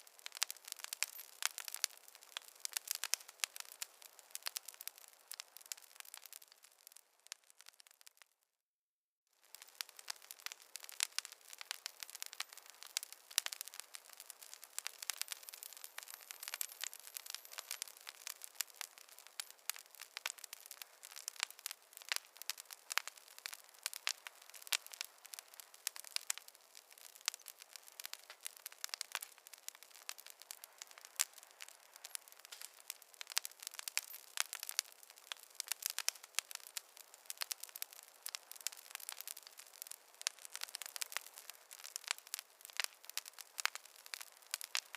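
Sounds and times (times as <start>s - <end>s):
wood fire crackling: 0.0s - 8.3s, 9.4s - 44.9s
faint fire hiss: 9.4s - 44.9s.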